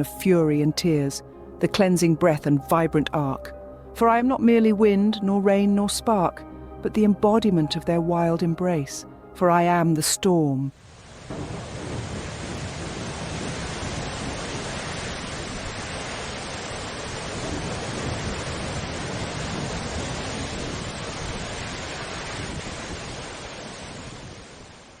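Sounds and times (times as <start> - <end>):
rain: 10.7 - 25.0
wind: 10.7 - 25.0.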